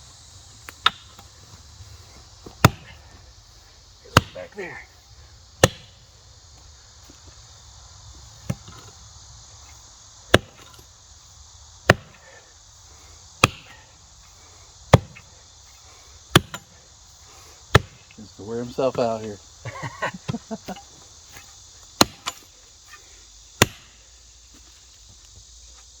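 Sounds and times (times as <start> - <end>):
insects chirring: 0.0 - 26.0
tool chopping tree roots: 0.6 - 1.6, 2.4 - 3.2, 4.0 - 5.0, 5.6 - 6.1, 8.4 - 9.0, 10.2 - 10.9, 11.8 - 12.4, 13.3 - 19.3, 20.2 - 24.1.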